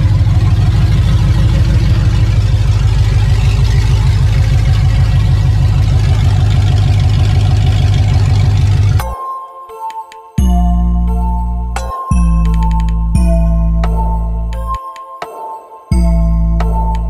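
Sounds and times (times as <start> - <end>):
car engine idling: 0.0 - 9.1.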